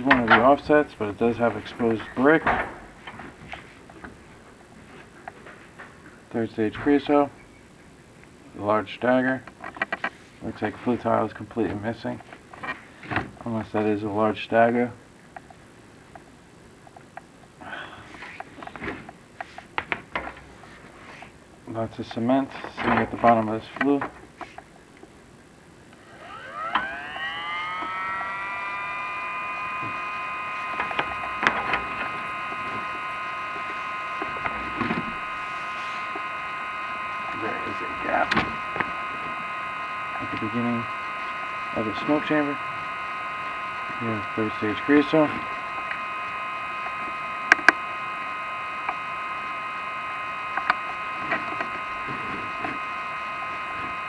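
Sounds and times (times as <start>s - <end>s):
small electric motor whining: 0.0s - 5.5s, 16.9s - 54.0s.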